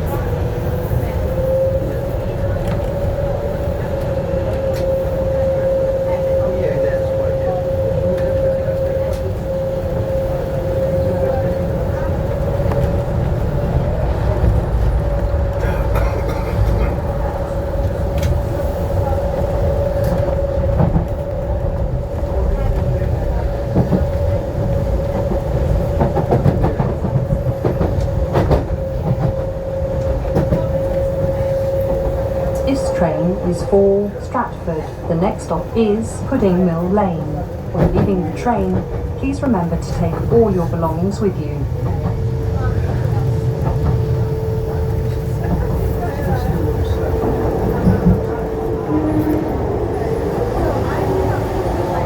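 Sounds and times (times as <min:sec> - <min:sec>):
train whine: 0:00.0 - 0:52.0
wheels rumbling on track: 0:00.0 - 0:52.0.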